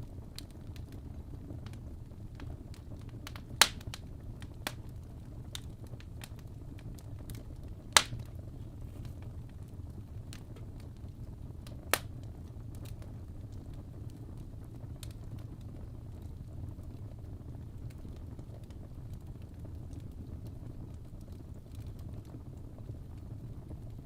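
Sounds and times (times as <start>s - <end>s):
wood fire crackling: 0.0s - 24.0s
fire popping sharply: 2.4s - 4.0s, 7.9s - 9.4s.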